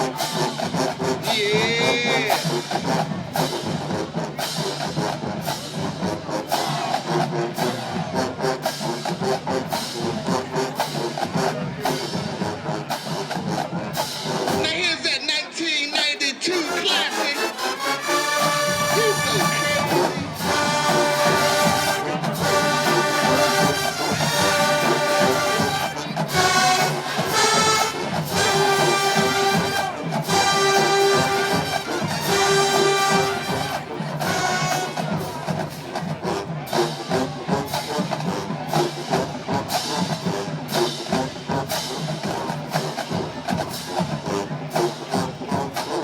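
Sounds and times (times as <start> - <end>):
drums: 0.0 - 46.0
marching band playing: 0.0 - 46.0
brass sustained chords: 16.6 - 35.0.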